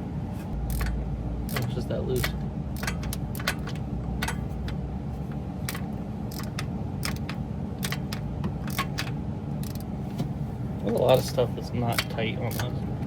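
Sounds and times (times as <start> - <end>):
steady low hum: 0.0 - 13.0
socket wrench clicking: 0.6 - 4.8, 5.7 - 9.9.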